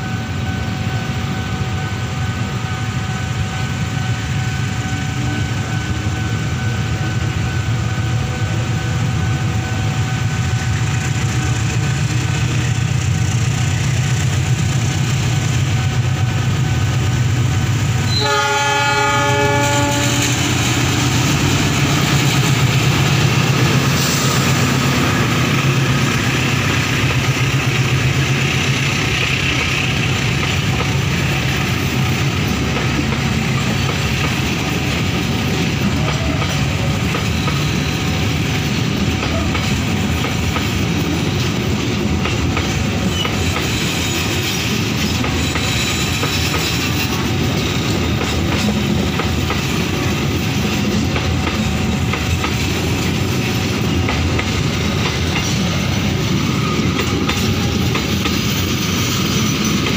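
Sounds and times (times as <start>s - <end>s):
diesel train passing: 0.0s - 59.9s
train horn blast: 18.0s - 20.6s.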